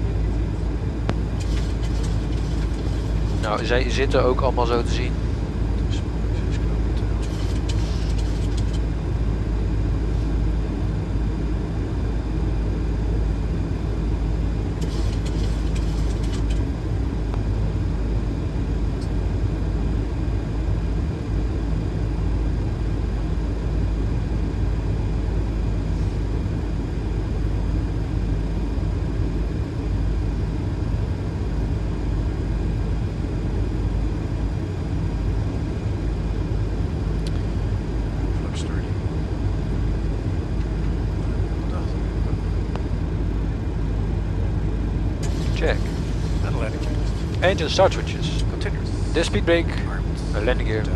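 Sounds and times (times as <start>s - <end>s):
airflow and engine rumble: 0.0s - 50.9s.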